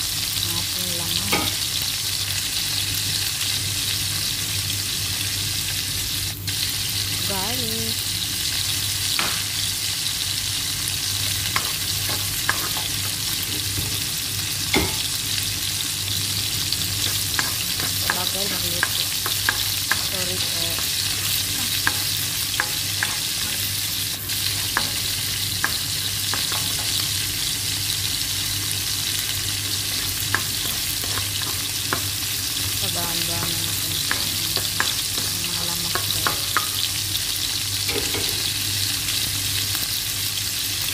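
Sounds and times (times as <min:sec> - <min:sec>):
onion sizzling in oil: 0:00.0 - 0:40.9
spatula scraping a pan: 0:11.5 - 0:13.8, 0:30.3 - 0:32.1.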